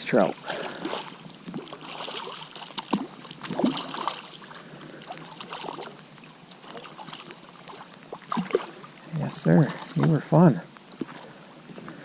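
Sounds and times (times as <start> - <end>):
creek water trickling: 0.0 - 12.0
short splashes: 0.4 - 6.0, 6.6 - 8.9, 9.5 - 10.3.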